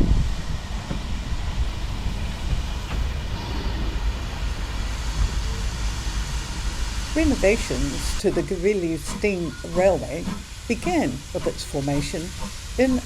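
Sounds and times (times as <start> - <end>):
railway carriage rumbling: 0.0 - 13.0.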